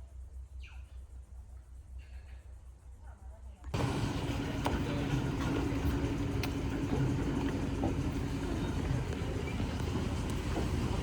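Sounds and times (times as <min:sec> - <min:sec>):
engine running: 0:03.8 - 0:11.0.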